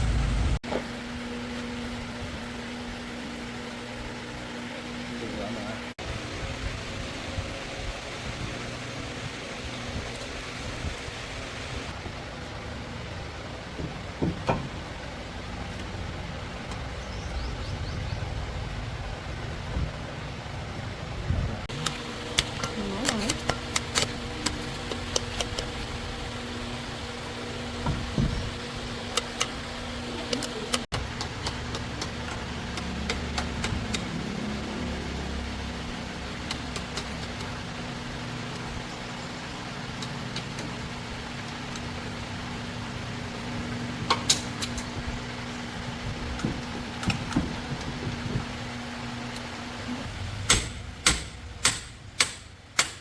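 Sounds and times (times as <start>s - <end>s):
engine idling: 0.0s - 53.0s
sharp clicks and knocks: 13.8s - 14.8s, 21.7s - 25.9s, 30.2s - 34.2s, 50.4s - 53.0s.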